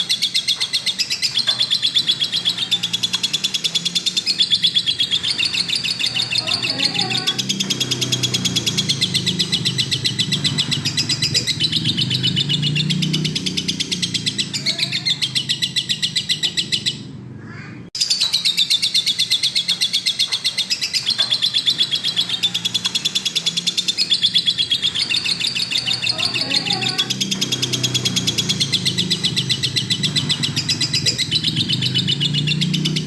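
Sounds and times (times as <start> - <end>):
lovebird chattering chirps: 0.0 - 17.1, 18.0 - 33.0.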